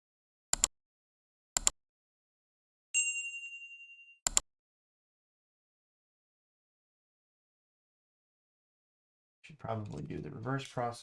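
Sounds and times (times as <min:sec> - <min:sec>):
bright bell ding: 0:03.0 - 0:04.2.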